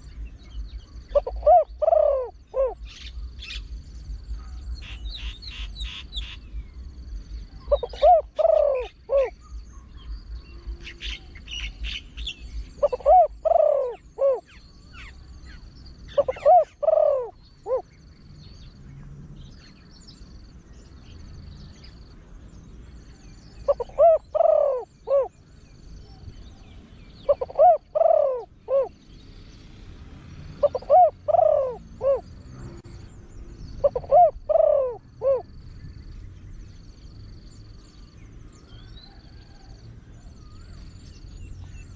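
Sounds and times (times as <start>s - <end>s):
dove cooing: 0.0s - 18.0s, 23.2s - 29.1s, 30.2s - 32.7s, 33.6s - 35.9s.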